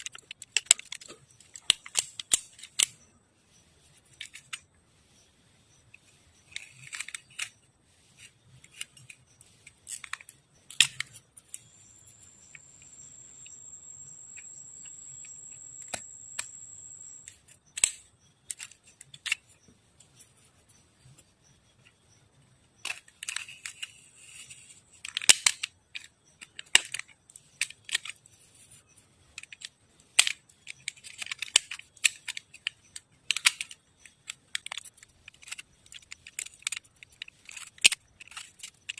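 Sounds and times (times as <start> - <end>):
hand tools clicking and scraping: 3.8 - 20.4, 22.8 - 38.9
thin high whine: 11.7 - 17.3.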